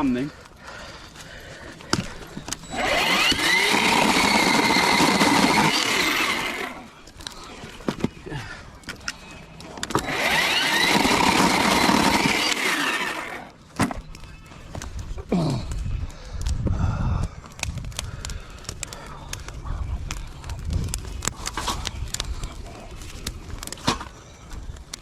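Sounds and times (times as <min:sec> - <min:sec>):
small motor whirring: 0:02.6 - 0:06.9, 0:09.9 - 0:13.6.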